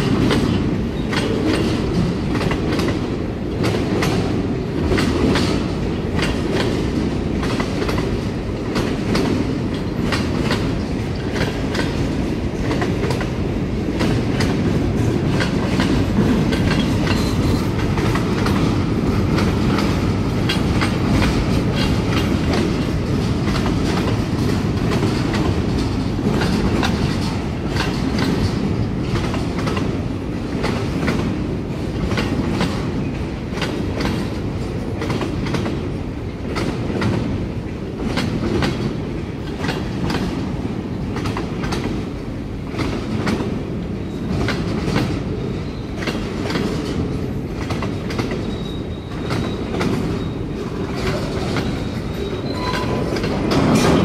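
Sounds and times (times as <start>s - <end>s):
freight train rumbling: 0.0s - 54.0s
wheels clacking over rail joints: 0.0s - 54.0s.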